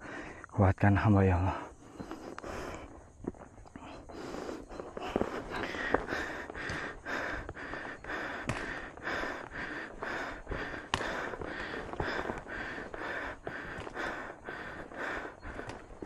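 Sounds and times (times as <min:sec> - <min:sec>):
person panting heavily: 0:00.0 - 0:00.5, 0:01.5 - 0:16.0
sharp clicks: 0:10.6 - 0:12.5, 0:15.5 - 0:16.0.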